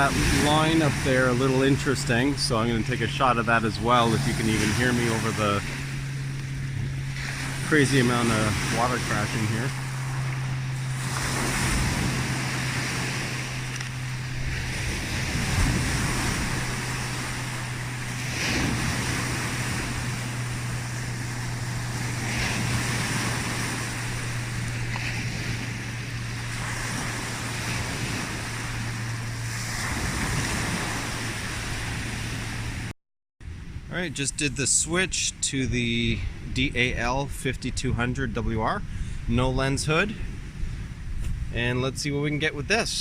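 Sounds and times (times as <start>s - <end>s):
water crashing: 0.0s - 32.9s.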